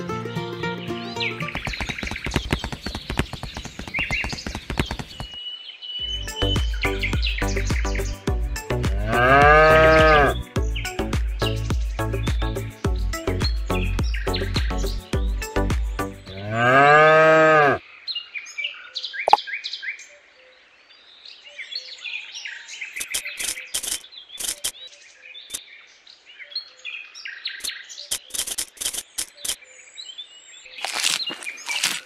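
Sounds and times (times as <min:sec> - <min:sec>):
music: 0:00.0 - 0:01.6, 0:06.0 - 0:16.4
birds chirping: 0:00.0 - 0:32.0
cow mooing: 0:09.0 - 0:10.4, 0:16.3 - 0:17.8.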